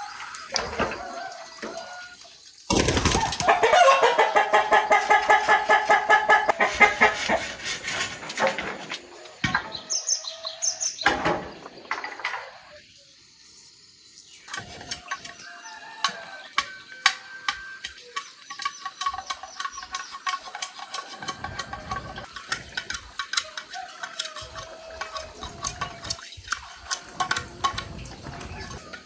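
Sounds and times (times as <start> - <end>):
chickens squawking: 0.0 - 10.9, 20.4 - 29.0
wings flapping: 2.7 - 4.1.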